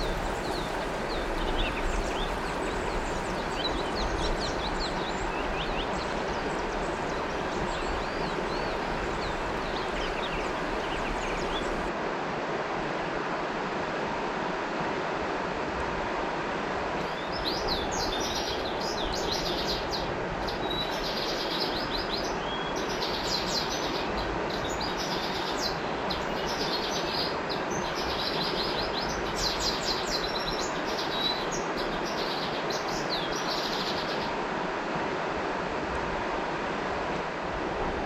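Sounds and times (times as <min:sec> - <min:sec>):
songbird chattering trills: 0:00.0 - 0:11.9
river rushing: 0:00.0 - 0:38.0.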